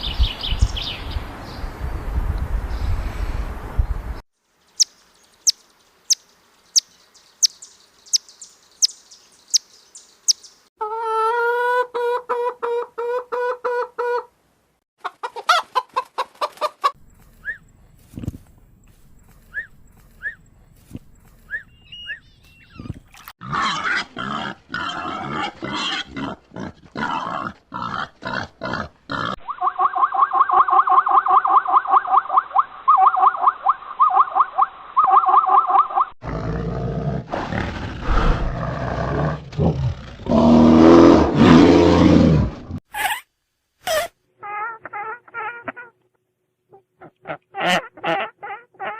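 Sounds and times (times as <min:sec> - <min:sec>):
large animal roaring and grunting: 0:23.4 - 0:29.4, 0:36.2 - 0:42.8.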